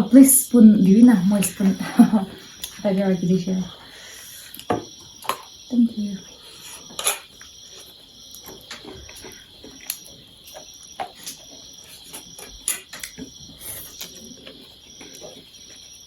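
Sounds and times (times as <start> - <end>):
crickets chirping: 0.0 - 16.0
high insect drone: 0.0 - 16.0
eating utensils clicking: 6.9 - 7.4, 12.1 - 15.3.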